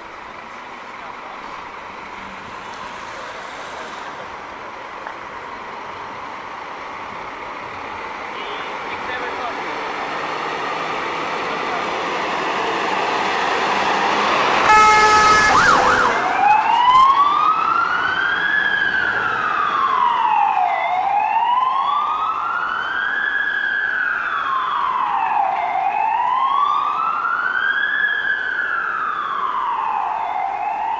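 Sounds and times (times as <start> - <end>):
siren wailing: 10.4 - 30.9
horn blast: 14.6 - 16.2.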